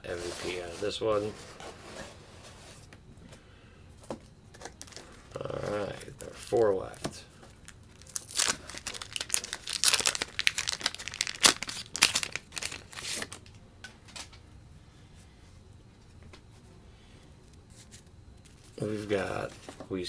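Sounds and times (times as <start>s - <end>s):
faint handling: 0.0s - 7.8s, 14.2s - 20.0s
paper wrapper tearing and crinkling: 7.6s - 13.5s, 17.8s - 19.7s.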